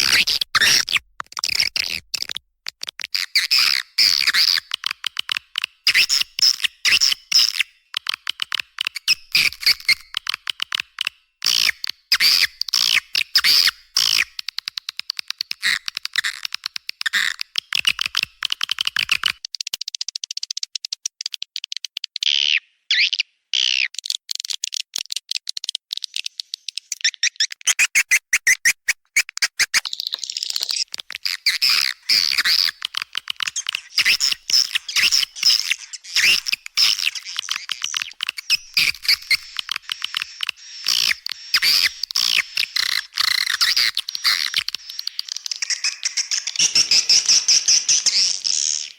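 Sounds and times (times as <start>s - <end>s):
swiftlet chirps and twitters: 29.6s - 48.9s.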